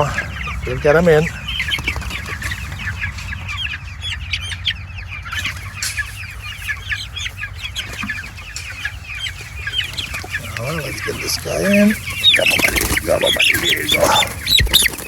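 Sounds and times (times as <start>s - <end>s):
chicks peeping and cheeping: 0.0s - 15.0s.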